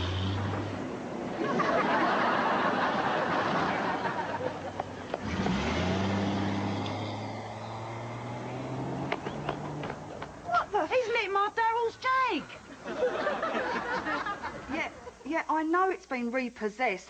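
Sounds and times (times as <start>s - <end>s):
car engine revving: 0.0s - 1.0s, 3.0s - 10.5s
tyre noise: 3.1s - 11.2s.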